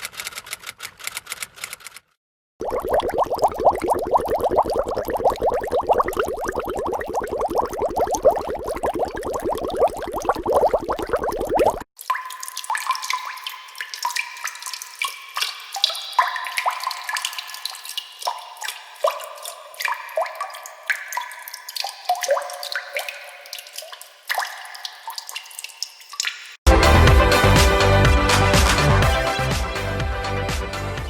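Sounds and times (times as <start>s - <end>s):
water dripping: 2.6s - 26.6s.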